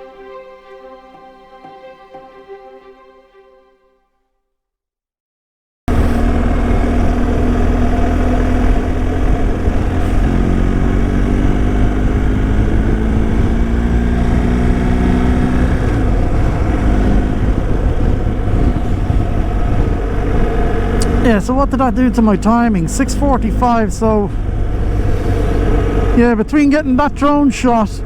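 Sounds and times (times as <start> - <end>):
motorcycle engine running: 5.9 - 26.4
road and wind noise: 5.9 - 28.0.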